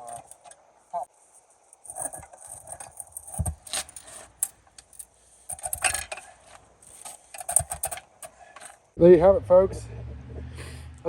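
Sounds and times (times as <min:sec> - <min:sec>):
metal clatter: 0:00.0 - 0:00.6, 0:01.8 - 0:08.9
pry bar clinking on metal: 0:00.0 - 0:00.6, 0:01.8 - 0:06.3.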